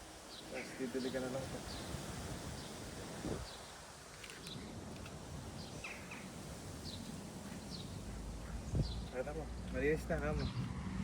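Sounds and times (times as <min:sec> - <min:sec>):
faint outdoor background noise: 0:00.0 - 0:11.0
bird chirping: 0:05.6 - 0:09.2.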